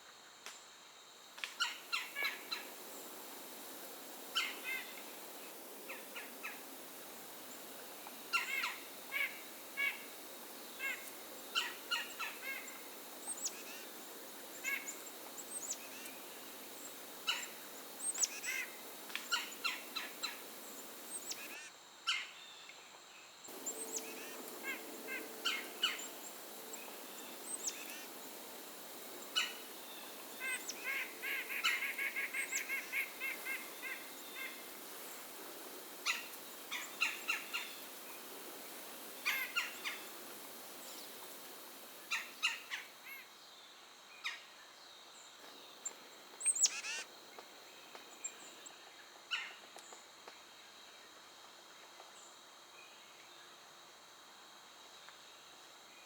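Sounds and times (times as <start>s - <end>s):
small songbirds calling: 1.6s - 21.6s, 23.5s - 42.9s, 45.4s - 47.1s.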